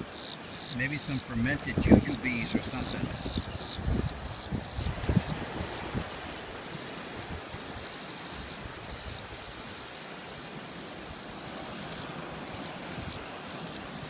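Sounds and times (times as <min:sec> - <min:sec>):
ocean surf: 0:00.0 - 0:14.0
wind noise on microphone: 0:00.8 - 0:09.8, 0:12.8 - 0:13.3.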